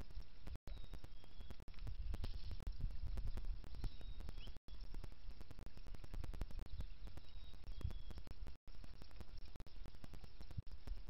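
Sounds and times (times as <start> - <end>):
crackling clicks: 0.0 - 11.0
faint high bird calls: 6.6 - 8.3.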